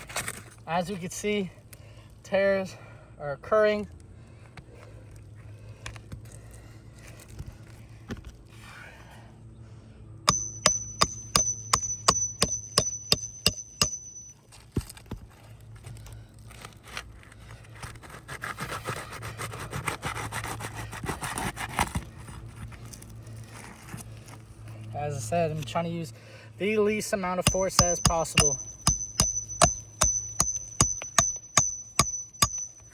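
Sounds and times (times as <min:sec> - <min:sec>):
hammer tapping metal tool: 0:10.3 - 0:14.4, 0:27.4 - 0:32.9
tool scraping under shingles: 0:26.9 - 0:32.9.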